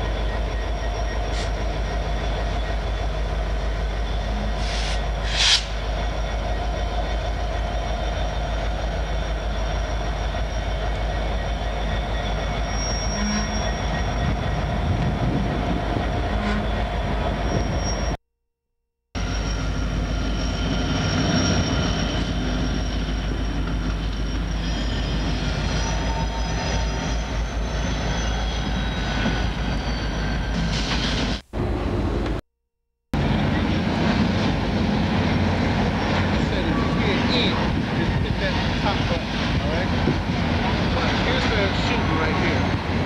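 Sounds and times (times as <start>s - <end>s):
diesel locomotives rumbling past: 0.0s - 18.2s, 33.2s - 43.0s
high wheel squeal: 0.0s - 18.2s, 19.2s - 31.4s, 35.3s - 43.0s.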